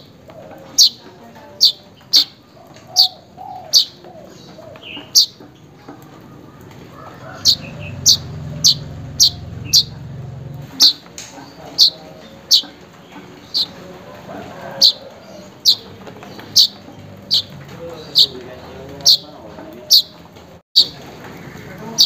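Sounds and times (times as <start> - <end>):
bird giving sharp chip calls: 7.4 - 9.9, 10.7 - 11.1, 11.8 - 12.7, 16.5 - 17.5.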